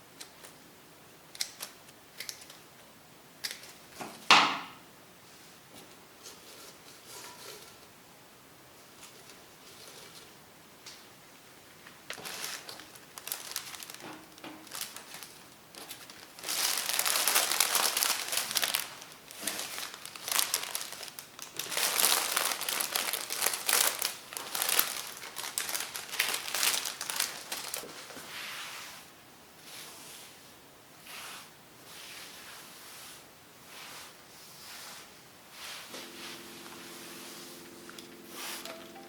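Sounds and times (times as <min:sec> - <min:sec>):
crinkly wrapping being crumpled: 0:11.8 - 0:28.4, 0:35.9 - 0:39.0.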